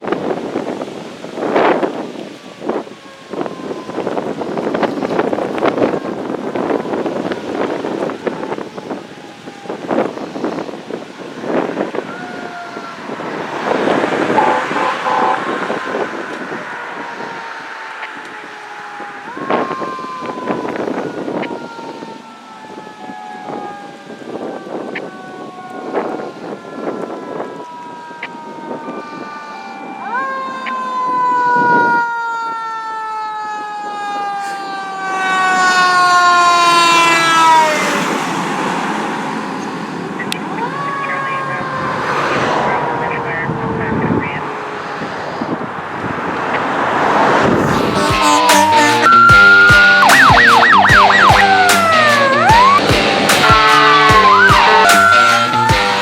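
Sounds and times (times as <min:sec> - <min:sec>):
fire engine siren: 0:00.0 - 0:56.0
road and wind noise: 0:00.0 - 0:56.0
short pulsing horn blasts: 0:14.2 - 0:15.6, 0:47.9 - 0:56.0.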